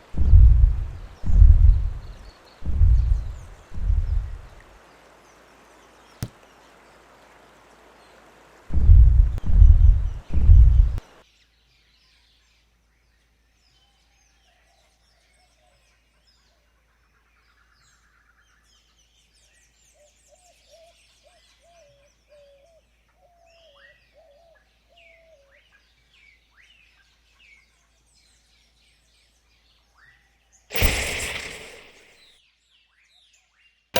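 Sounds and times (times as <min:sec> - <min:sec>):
birds chirping and twittering: 0:00.0 - 0:08.6, 0:30.7 - 0:32.3
low wavering bird warble: 0:30.7 - 0:32.3.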